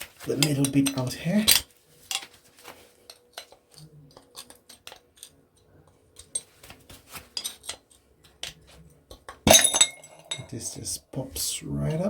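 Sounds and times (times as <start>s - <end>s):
screwdriver clicking and scraping: 3.0s - 6.5s.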